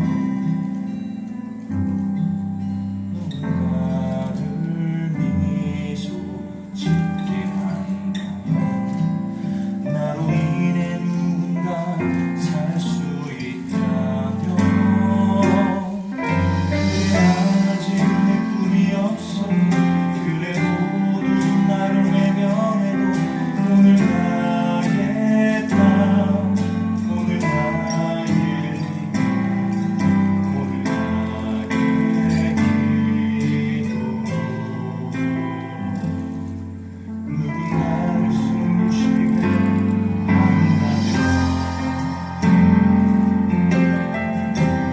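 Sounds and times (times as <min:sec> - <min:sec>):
acoustic guitar: 0:00.0 - 0:44.9
live band playing: 0:13.9 - 0:35.1, 0:36.0 - 0:44.9.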